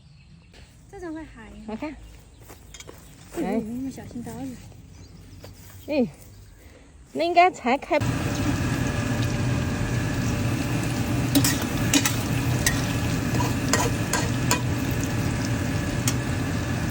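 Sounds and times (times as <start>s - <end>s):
food sizzling in a pan: 8.0s - 16.9s.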